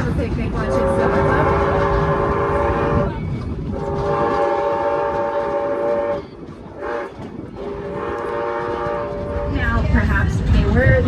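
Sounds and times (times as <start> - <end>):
moving train rumble: 0.0 - 11.0
train whistle blasts: 0.7 - 3.1, 3.8 - 9.5.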